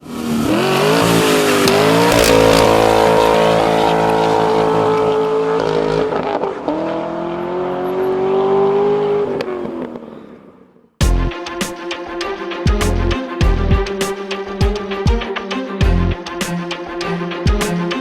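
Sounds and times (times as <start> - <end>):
car engine accelerating hard: 0.0 - 10.5.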